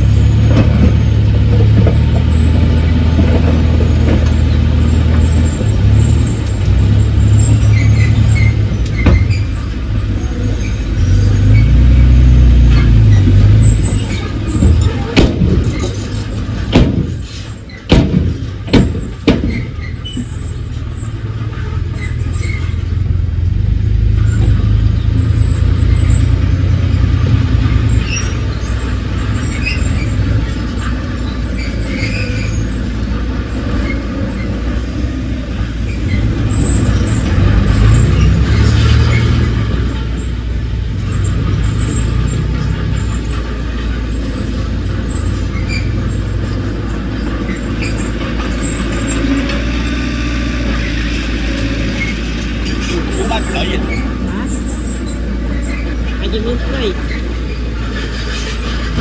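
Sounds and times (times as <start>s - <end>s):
diesel machinery rumbling: 0.0s - 59.0s
sharp knocks: 14.6s - 20.3s.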